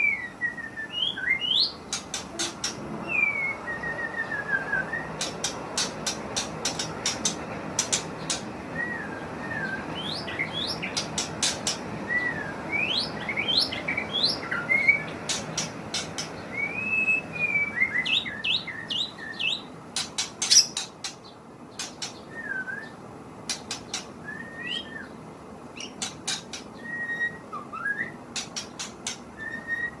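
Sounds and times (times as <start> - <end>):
bird whistling upward notes: 0.0 - 1.8, 2.4 - 5.4, 8.7 - 11.0, 12.1 - 15.2, 16.5 - 19.7, 22.3 - 23.0, 23.9 - 25.2, 26.8 - 28.2, 29.3 - 30.0
sharp bird clicks: 1.9 - 2.8, 5.2 - 8.5, 10.6 - 11.8, 15.0 - 16.4, 19.9 - 21.2, 21.8 - 22.3, 23.5 - 24.2, 25.8 - 26.8, 28.3 - 29.3.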